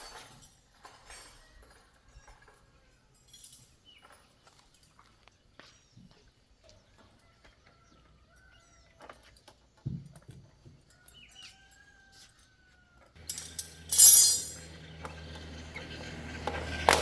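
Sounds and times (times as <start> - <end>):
machine humming: 13.2 - 17.0.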